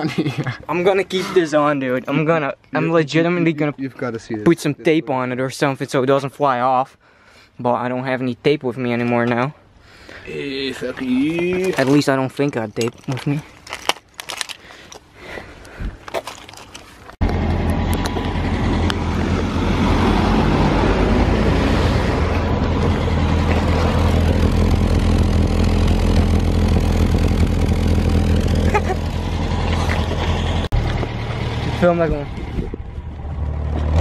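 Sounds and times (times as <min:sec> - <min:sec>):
car engine and exhaust running: 0:17.2 - 0:34.0.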